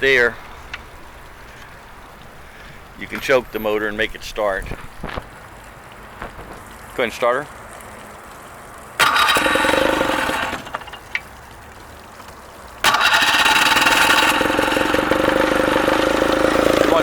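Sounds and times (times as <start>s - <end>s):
outboard motor starting and running: 9.0s - 11.3s, 12.8s - 17.0s.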